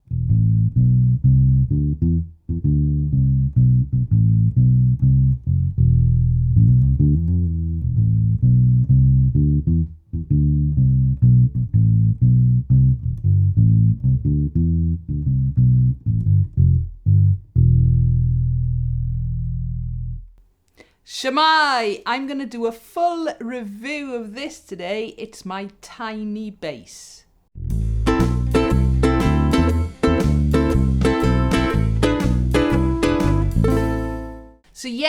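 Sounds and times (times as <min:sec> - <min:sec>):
plucked bass line: 0:00.0 - 0:20.4, 0:27.6 - 0:34.6.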